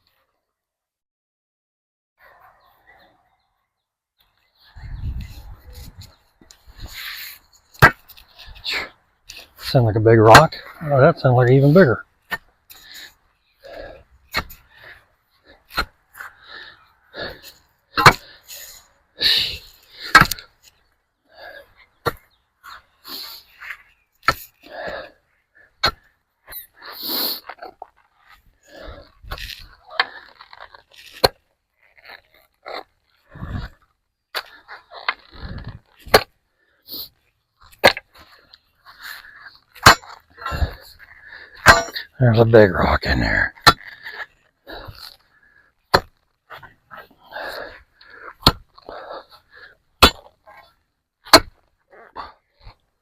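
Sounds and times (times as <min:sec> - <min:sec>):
stones crunching and scraping: 0:04.6 - 0:53.0
pick striking rock: 0:07.8 - 0:08.2, 0:14.3 - 0:14.6, 0:18.0 - 0:18.3, 0:20.1 - 0:20.5, 0:37.7 - 0:38.2, 0:39.8 - 0:44.1, 0:45.9 - 0:46.7, 0:48.4 - 0:49.0, 0:50.0 - 0:50.3, 0:51.2 - 0:51.6
heavy breathing: 0:12.6 - 0:20.6, 0:24.5 - 0:30.4, 0:32.7 - 0:33.8, 0:38.0 - 0:42.2, 0:43.3 - 0:45.8, 0:46.5 - 0:49.9.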